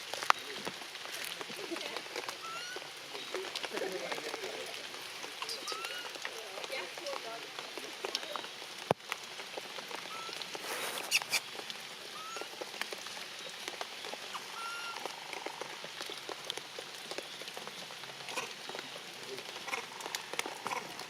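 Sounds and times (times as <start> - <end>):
rain pattering: 0.0 - 21.0
brief high squeaks: 10.7 - 11.4.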